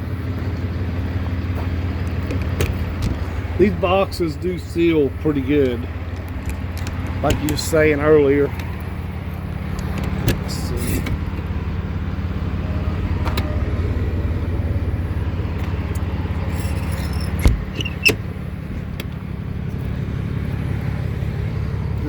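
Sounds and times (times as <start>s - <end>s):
diesel truck engine idling: 0.0s - 22.0s
sharp clunks: 2.1s - 3.6s, 5.5s - 7.8s, 16.6s - 19.2s.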